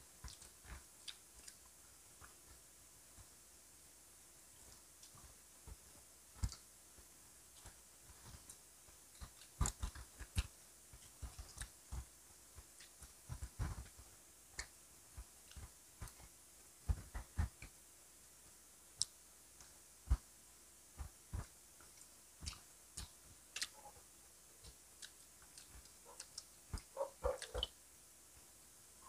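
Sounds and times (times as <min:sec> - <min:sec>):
people chewing: 0:00.2 - 0:02.6, 0:07.5 - 0:14.0, 0:21.3 - 0:27.8
wet clicks and lip smacks: 0:09.2 - 0:11.8, 0:21.4 - 0:23.9, 0:24.6 - 0:27.8.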